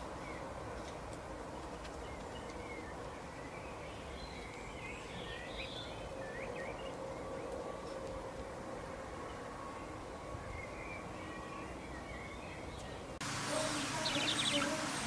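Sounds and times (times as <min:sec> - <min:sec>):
outdoor background hiss: 0:08.1 - 0:15.0
small birds chirping: 0:10.6 - 0:15.0.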